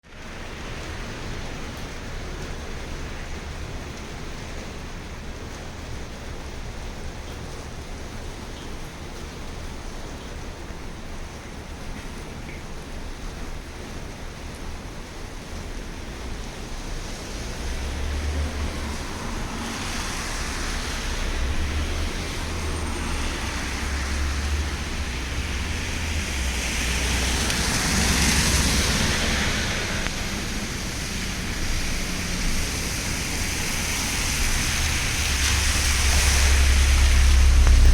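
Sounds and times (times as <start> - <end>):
bus engine and road noise: 0.1 - 37.9
hiss: 25.5 - 37.9.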